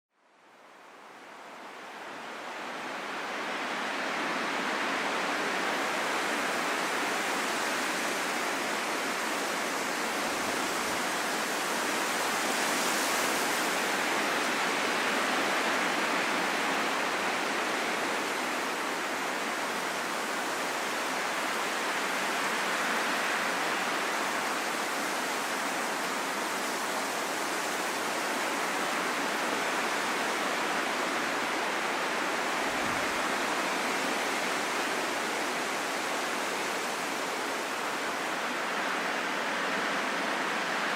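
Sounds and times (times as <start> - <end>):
steady rain hiss: 0.2 - 40.9.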